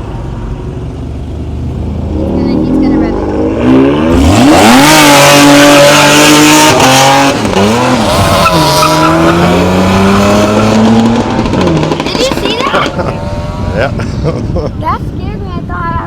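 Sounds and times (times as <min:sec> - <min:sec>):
car engine revving hard: 0:01.9 - 0:14.4
tires squealing: 0:02.1 - 0:14.3.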